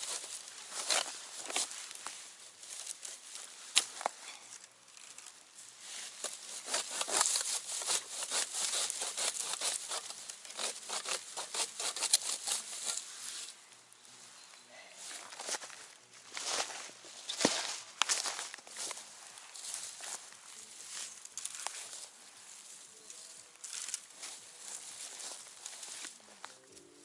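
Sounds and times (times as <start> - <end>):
twigs crackling and rustling: 0.0 - 27.0
twig snapping: 3.7 - 5.3.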